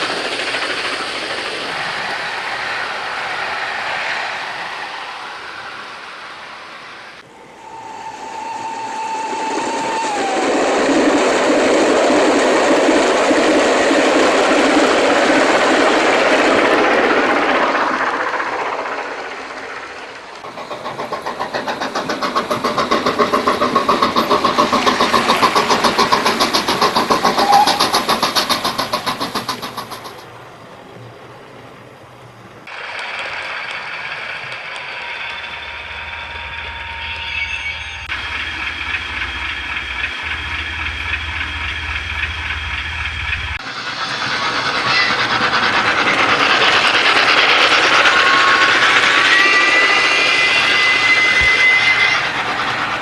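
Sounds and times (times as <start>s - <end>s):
fast even pulsing: 0.0s - 30.2s
train engine sound: 0.0s - 53.0s
train rumble: 0.0s - 53.0s.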